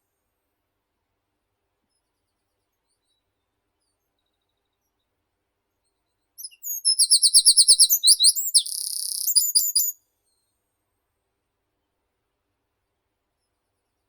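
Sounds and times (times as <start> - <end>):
songbird singing with trill: 6.4 - 10.0.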